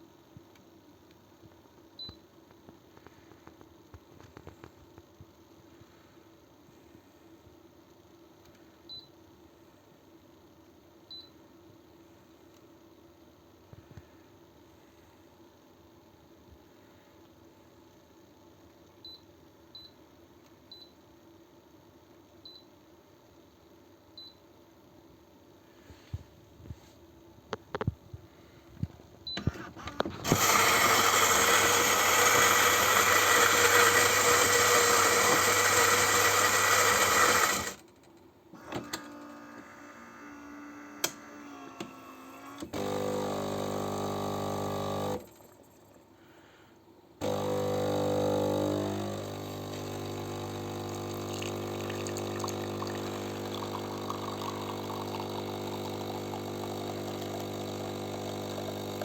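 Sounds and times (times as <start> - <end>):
pump humming: 29.4 - 37.8, 38.7 - 45.3, 47.2 - 59.0
coffee grinder running: 29.8 - 37.8, 42.6 - 45.2, 47.2 - 59.0.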